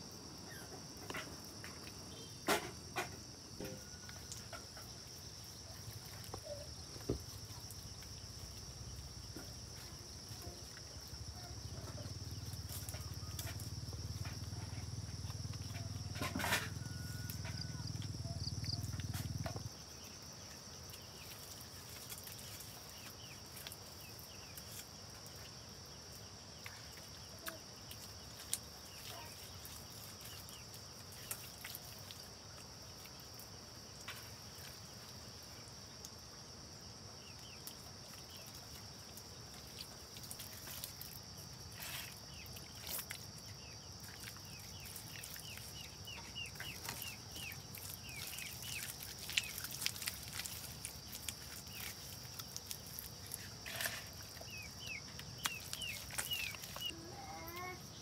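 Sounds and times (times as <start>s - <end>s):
birds chirping: 53.3s - 57.7s.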